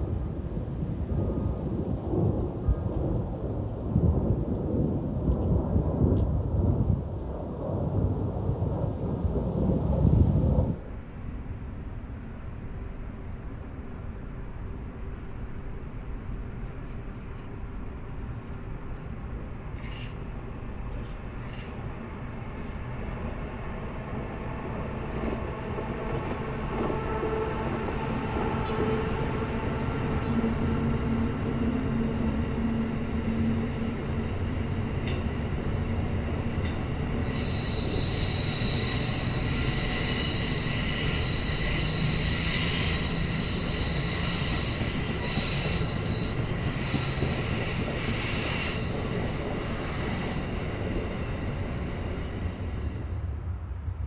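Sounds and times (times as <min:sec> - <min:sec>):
train rumbling on track: 0:00.0 - 0:54.0
wheel squeal: 0:36.6 - 0:50.9.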